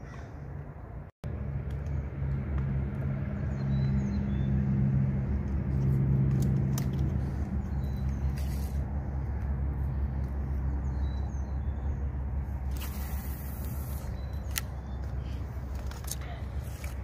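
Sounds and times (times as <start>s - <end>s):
vehicle engine droning: 0.0s - 17.0s.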